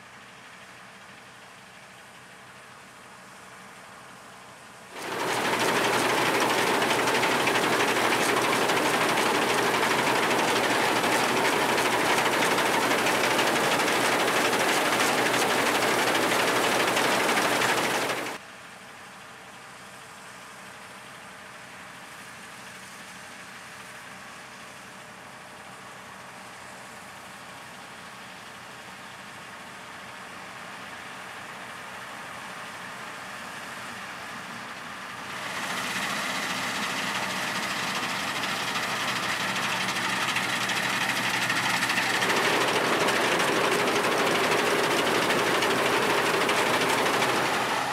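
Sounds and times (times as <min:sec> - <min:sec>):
engine running: 0:05.0 - 0:18.4, 0:35.2 - 0:47.9
harvest machinery clattering: 0:05.0 - 0:18.4, 0:35.4 - 0:47.9.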